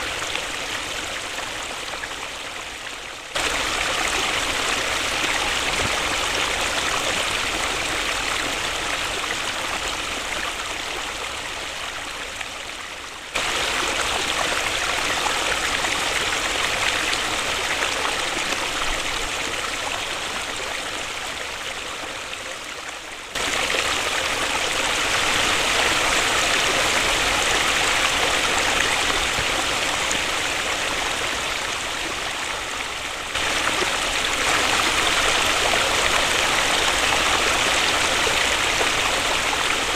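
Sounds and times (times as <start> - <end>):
waterfall rushing: 3.4 - 10.3, 13.4 - 20.3, 23.4 - 39.9.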